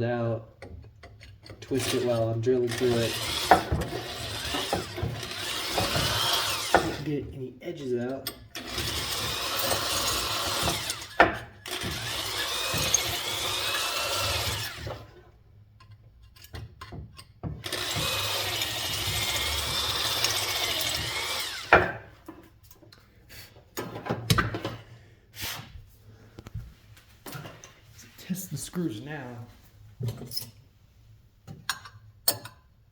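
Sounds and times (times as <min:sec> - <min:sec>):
electric drill whining into metal: 0:01.7 - 0:07.0, 0:08.5 - 0:15.2, 0:17.6 - 0:22.0.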